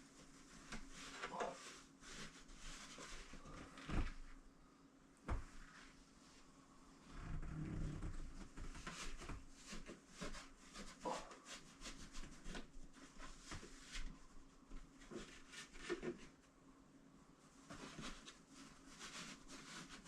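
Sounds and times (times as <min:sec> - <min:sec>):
rubbing and scraping: 0:17.7 - 0:20.0.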